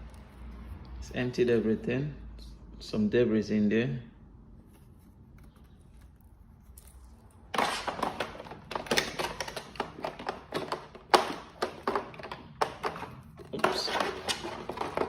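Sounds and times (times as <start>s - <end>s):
plastic rustling: 4.8s - 15.0s
plastic clicks and knocks: 7.6s - 15.0s.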